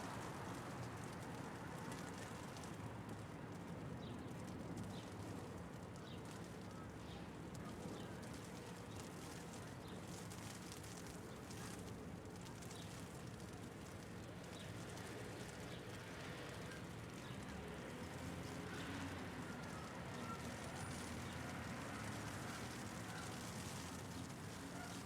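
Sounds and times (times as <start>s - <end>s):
city traffic hum: 0.0s - 25.0s
hail ticking: 7.5s - 25.0s.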